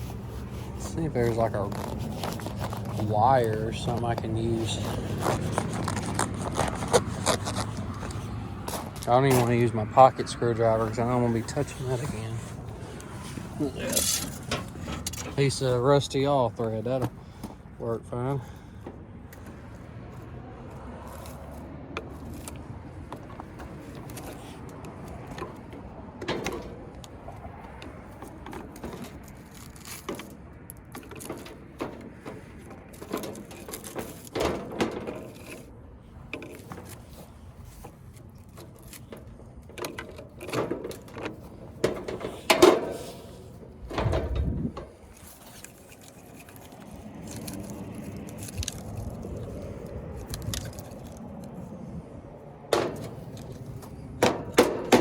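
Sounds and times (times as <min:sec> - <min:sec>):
metal rod scraping against metal: 0:11.4 - 0:15.7, 0:40.4 - 0:47.5.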